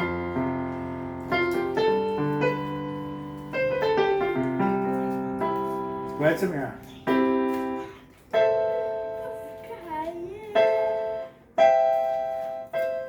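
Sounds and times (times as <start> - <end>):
piano notes: 0.0 - 13.0
voice: 9.2 - 11.0.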